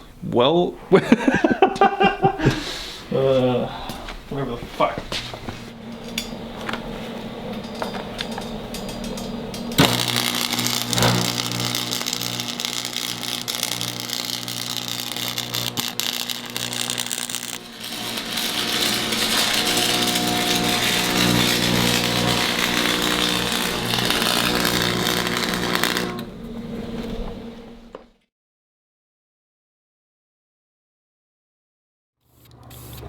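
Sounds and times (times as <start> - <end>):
power tool humming: 5.7 - 28.0.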